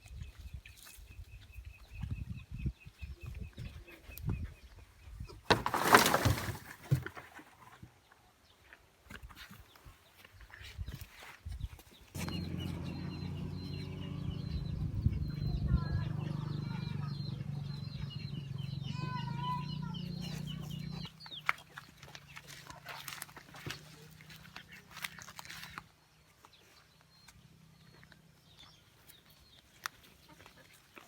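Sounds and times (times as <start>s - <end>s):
low mechanical hum: 12.2s - 21.1s
chickens clucking and chirping: 12.2s - 23.1s.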